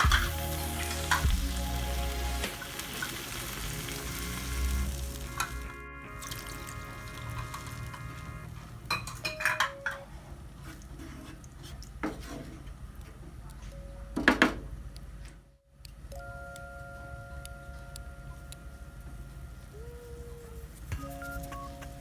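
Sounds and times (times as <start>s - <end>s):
quiet background music: 0.0s - 11.2s, 12.9s - 22.0s
dishes and cutlery clinking: 8.9s - 10.2s.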